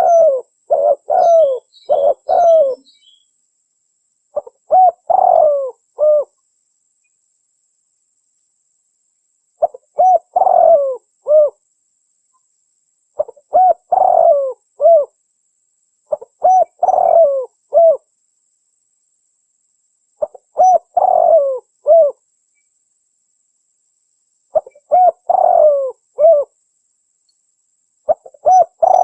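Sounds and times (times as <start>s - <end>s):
dove cooing: 0.0s - 3.2s, 4.4s - 6.3s, 9.6s - 11.6s, 13.2s - 15.2s, 16.1s - 18.0s, 20.2s - 22.2s, 24.5s - 26.6s, 28.1s - 29.0s.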